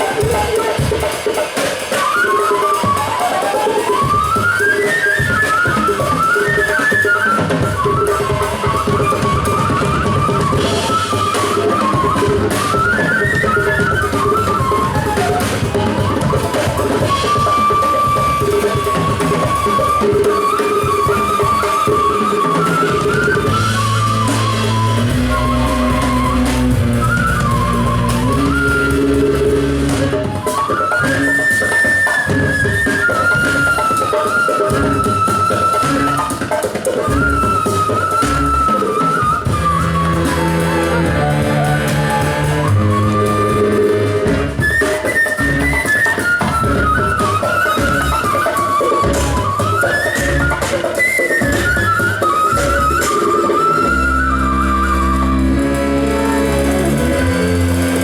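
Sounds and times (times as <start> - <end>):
busy drums: 0.0 - 58.0
percussion hits: 3.8 - 58.0
high wavering melody: 20.2 - 30.7, 39.4 - 45.7, 52.9 - 58.0
held bass notes: 23.5 - 30.2, 39.5 - 44.6, 54.0 - 58.0.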